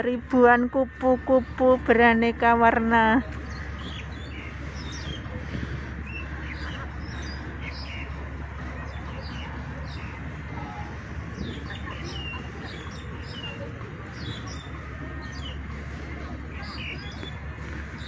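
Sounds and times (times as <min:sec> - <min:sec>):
low outdoor rumble: 0:00.0 - 0:18.0
small birds chirping: 0:02.2 - 0:18.0.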